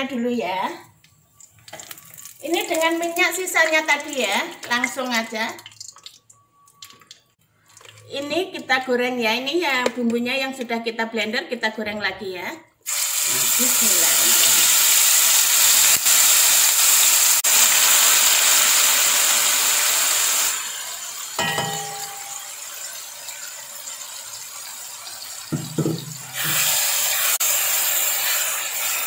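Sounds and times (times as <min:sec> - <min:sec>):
chilli paste sizzling in oil: 0:12.9 - 0:29.0.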